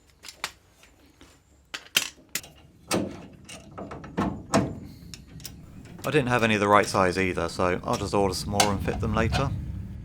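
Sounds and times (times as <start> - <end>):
metal tools clinking and knocking: 1.8 - 4.7.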